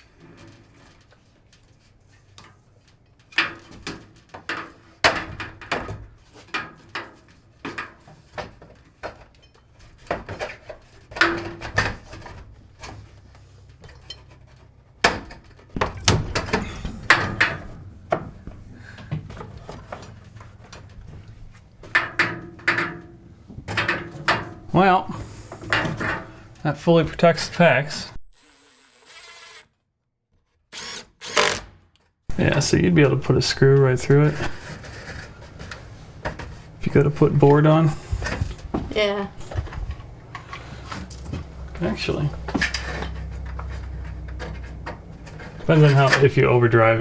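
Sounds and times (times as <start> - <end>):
knocks and taps on wooden framing: 15.0 - 21.2.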